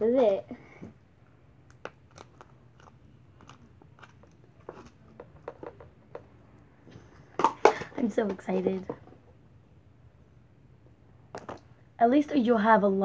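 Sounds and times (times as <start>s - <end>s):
squished slime crackling: 1.6s - 5.0s.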